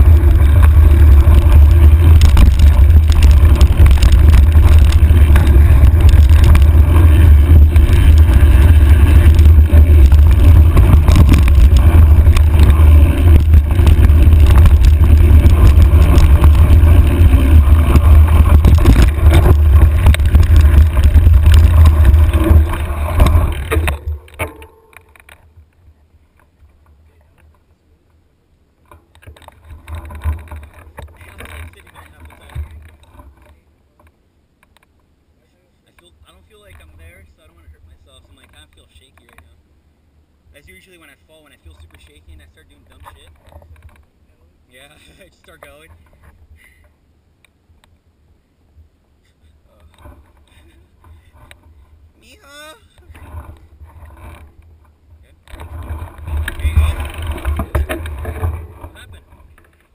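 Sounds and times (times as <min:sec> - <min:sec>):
wind buffeting microphone: 0:00.0 - 0:25.7, 0:52.9 - 0:59.9
mountain bike rattling over trail: 0:00.0 - 0:27.7, 0:28.8 - 0:34.2, 0:40.5 - 0:44.2, 0:44.8 - 0:46.9, 0:49.7 - 0:59.9.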